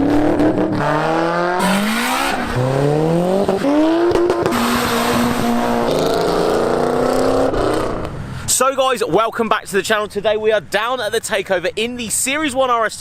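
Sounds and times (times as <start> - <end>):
car engines revving: 0.0 - 8.4.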